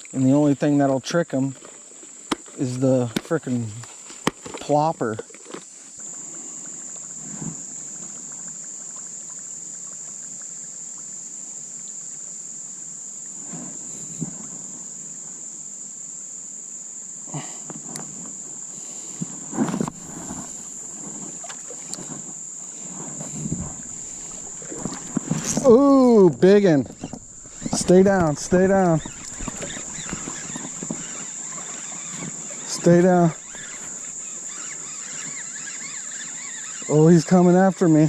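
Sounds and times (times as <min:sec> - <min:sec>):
insects buzzing: 0:00.0 - 0:38.0
splashes: 0:19.9 - 0:37.1.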